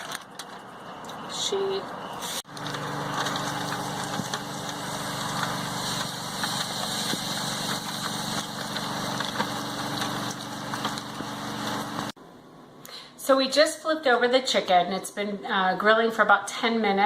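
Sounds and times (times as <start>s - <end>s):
low mechanical hum: 0.0s - 13.1s
chicken sizzling on a grill: 2.2s - 12.1s.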